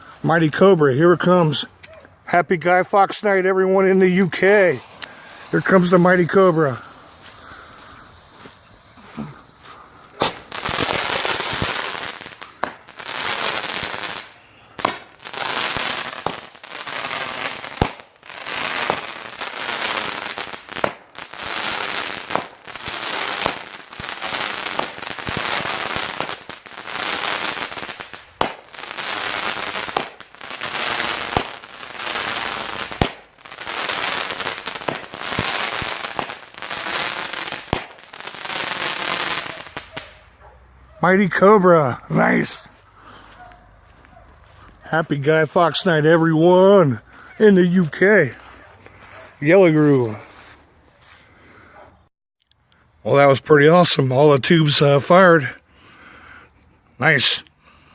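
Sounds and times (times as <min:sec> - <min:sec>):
firework crackling: 0:03.9 - 0:40.3
firework launch thumps: 0:10.2 - 0:10.8.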